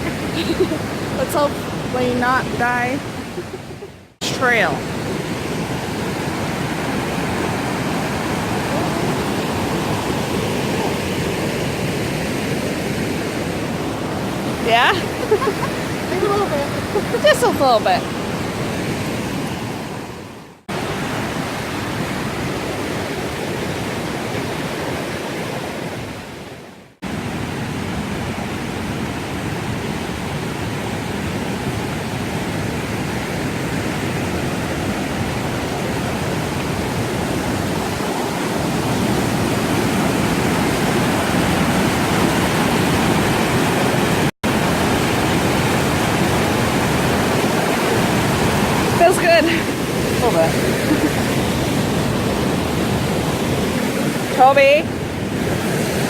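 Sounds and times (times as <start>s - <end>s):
fast-flowing water rushing: 0.0s - 56.0s.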